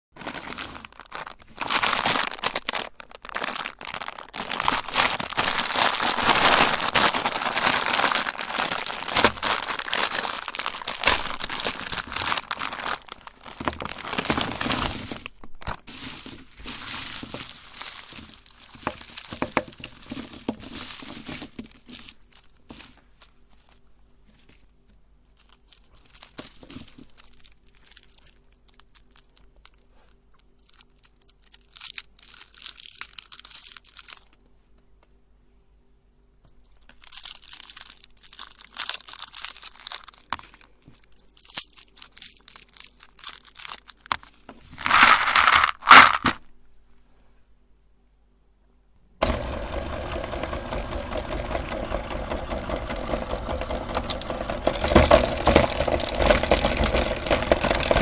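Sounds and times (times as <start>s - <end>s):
crinkling and tearing handling noises: 0.2s - 34.6s, 36.5s - 46.5s, 49.2s - 58.0s
meat grinder motor running: 49.2s - 58.0s.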